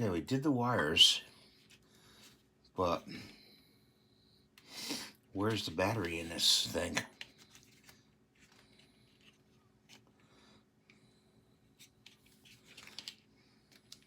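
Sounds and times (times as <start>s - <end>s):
plastic device clicking and rustling: 11.8s - 14.0s.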